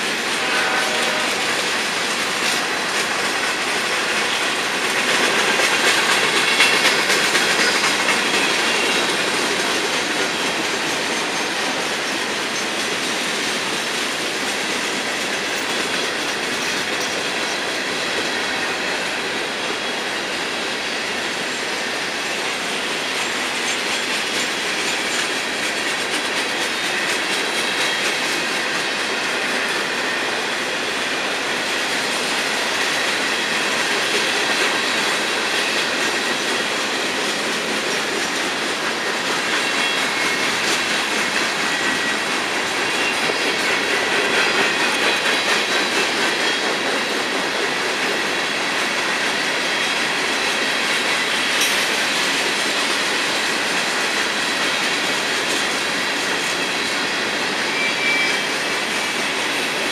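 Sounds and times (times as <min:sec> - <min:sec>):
train wheels clacking on rails: 0:00.0 - 0:59.9.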